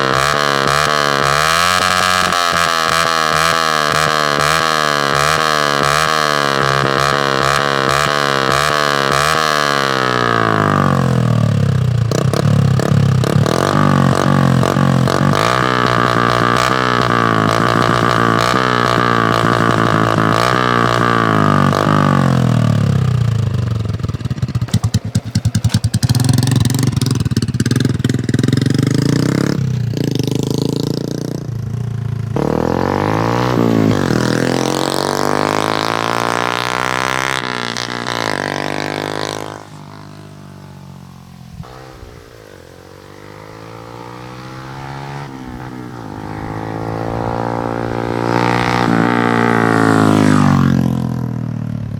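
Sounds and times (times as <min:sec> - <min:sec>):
motorcycle engine revving: 0:00.0 - 0:51.9
exhaust pops: 0:11.9 - 0:29.2.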